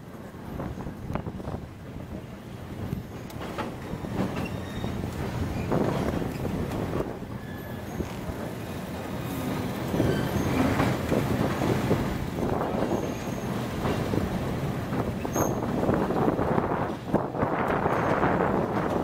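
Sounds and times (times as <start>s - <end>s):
train wheels rumbling and clattering: 0.0s - 19.0s
wheel squeals: 4.1s - 6.5s, 7.3s - 8.4s, 9.9s - 11.0s, 12.8s - 13.6s, 15.2s - 15.8s.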